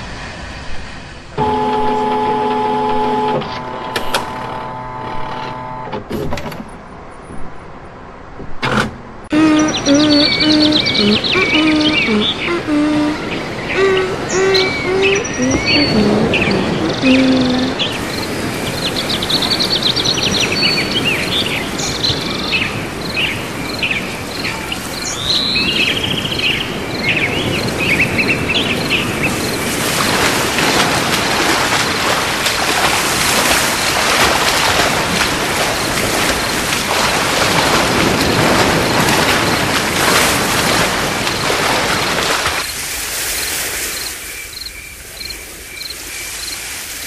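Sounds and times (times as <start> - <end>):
small birds chirping: 9.3 - 29.6.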